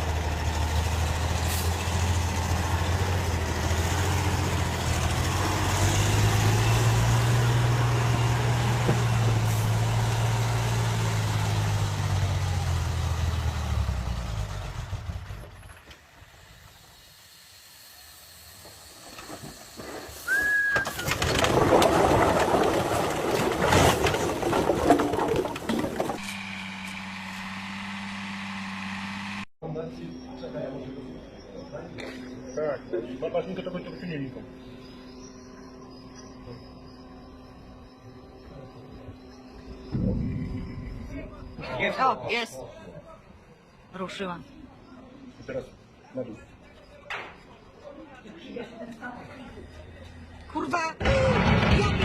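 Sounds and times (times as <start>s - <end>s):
heavy truck engine under load: 0.0s - 16.4s
short high squeal: 20.2s - 21.1s.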